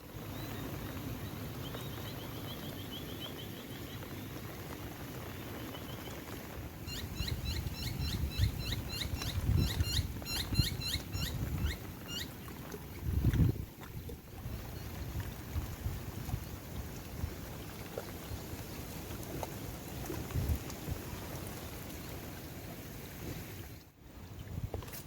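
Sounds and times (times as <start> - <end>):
wind buffeting microphone: 6.9 - 17.5, 20.1 - 21.2.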